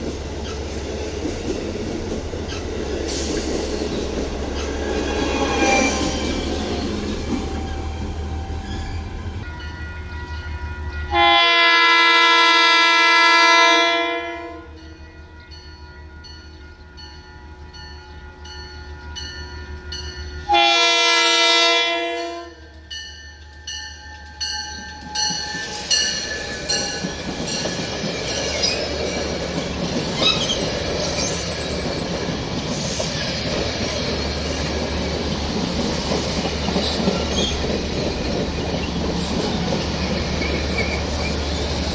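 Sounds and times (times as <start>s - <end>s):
train rumble: 0.0s - 11.2s, 22.5s - 41.9s
train horn blasts: 4.8s - 15.5s, 19.7s - 22.7s.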